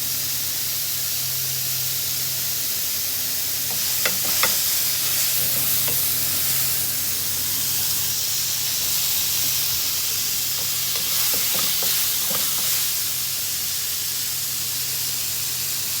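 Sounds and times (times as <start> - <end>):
mushrooms sizzling in a pan: 0.1 - 16.0
utensil clicking in a pan: 3.7 - 7.0, 8.8 - 13.3.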